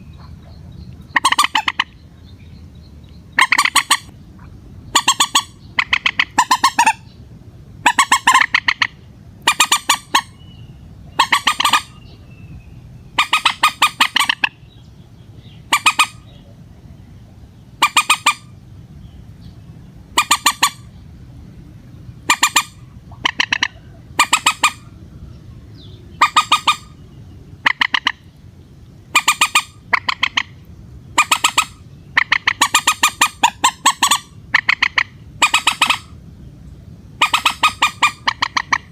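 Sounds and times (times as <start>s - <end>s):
moorhen harsh rattling calls: 0.1s - 2.0s, 3.3s - 4.1s, 4.9s - 7.2s, 7.8s - 12.2s, 13.1s - 14.8s, 15.4s - 16.4s, 17.8s - 18.5s, 20.1s - 20.9s, 22.2s - 24.9s, 26.1s - 27.0s, 27.6s - 28.3s, 29.1s - 36.2s, 37.2s - 38.9s.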